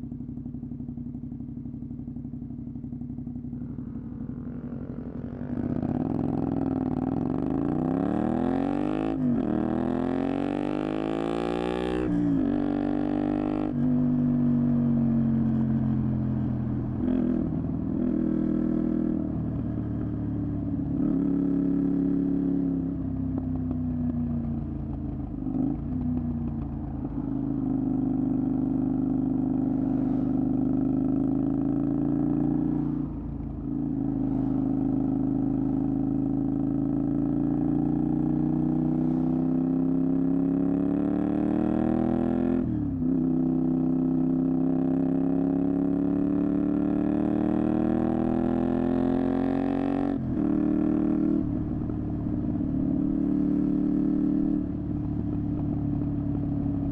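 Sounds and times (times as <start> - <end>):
motorcycle engine accelerating: 0.0 - 56.9.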